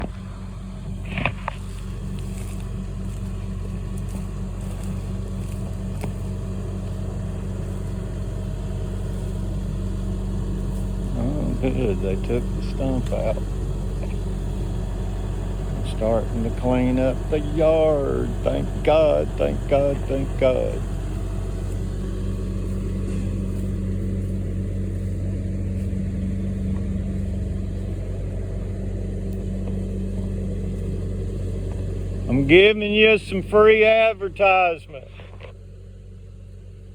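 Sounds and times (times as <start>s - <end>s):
engine humming: 0.0s - 36.9s.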